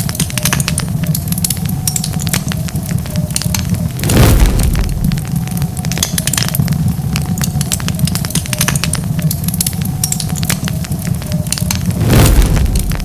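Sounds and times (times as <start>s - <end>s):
wood fire crackling: 0.0s - 13.0s
rush of noise: 4.0s - 5.5s, 11.8s - 13.0s.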